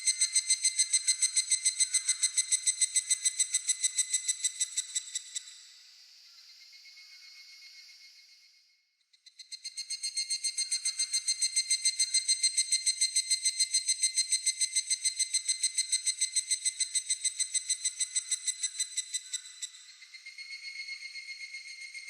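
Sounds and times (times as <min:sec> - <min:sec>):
cicada ringing call: 0:00.0 - 0:05.7, 0:09.3 - 0:22.0.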